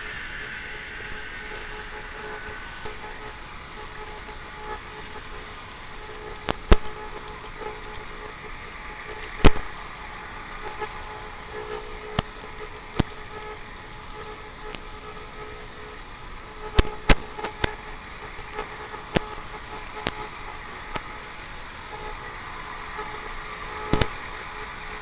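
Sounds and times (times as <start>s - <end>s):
sharp clicks: 23.9s - 24.1s.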